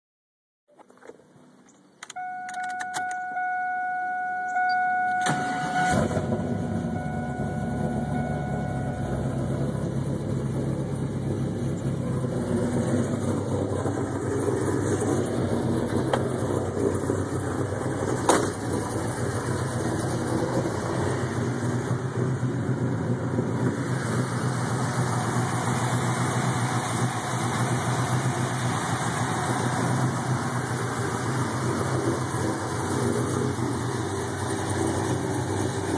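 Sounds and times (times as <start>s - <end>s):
car engine cranking and idling: 0.7s - 35.9s
sharp click: 0.8s - 3.3s
electronic warning tone: 2.2s - 9.6s.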